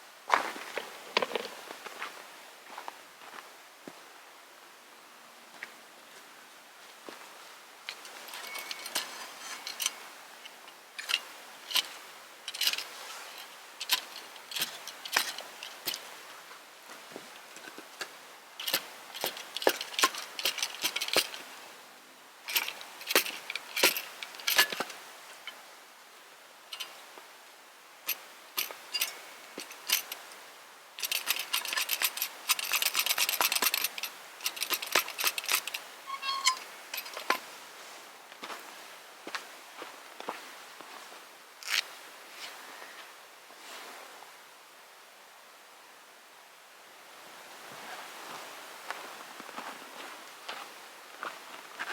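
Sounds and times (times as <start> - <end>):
camp gear clicking and clinking: 0.6 - 1.7, 7.9 - 16.2, 17.3 - 21.6, 22.4 - 25.7, 26.7 - 27.1, 28.1 - 30.4, 31.0 - 37.5, 41.6 - 41.9
gear rattling: 7.9 - 16.1, 18.6 - 21.6, 22.5 - 25.6, 28.1 - 30.3, 31.0 - 37.4.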